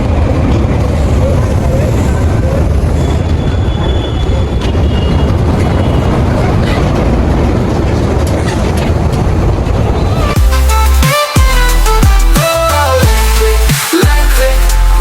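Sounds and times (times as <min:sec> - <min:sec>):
vehicle road and wind noise: 0:00.0 - 0:10.4.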